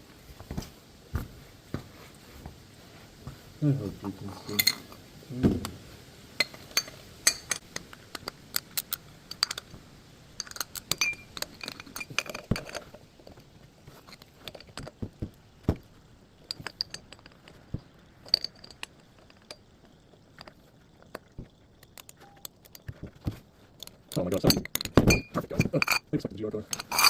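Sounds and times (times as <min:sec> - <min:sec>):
hand tools and metal parts clinking: 0:04.2 - 0:05.0, 0:06.4 - 0:09.7, 0:10.4 - 0:15.1, 0:16.4 - 0:27.0.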